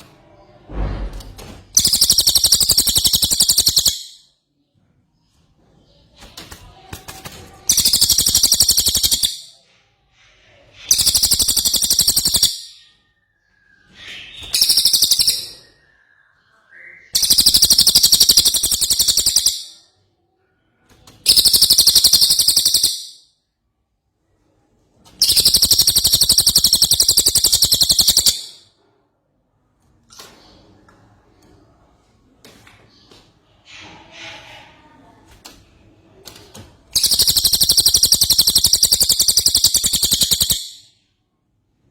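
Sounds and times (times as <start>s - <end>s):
bird chattering song: 1.8s - 4.3s, 7.7s - 9.6s, 10.8s - 12.9s, 13.8s - 19.8s, 21.2s - 23.2s, 25.2s - 28.6s, 36.9s - 40.9s.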